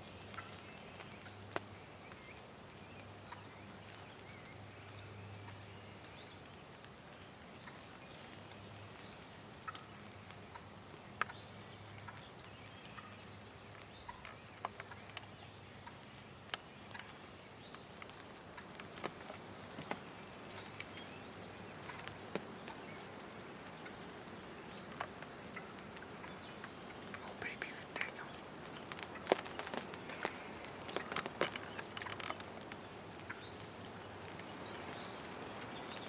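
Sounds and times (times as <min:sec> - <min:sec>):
faint bird chirps: 0:20.0 - 0:36.0.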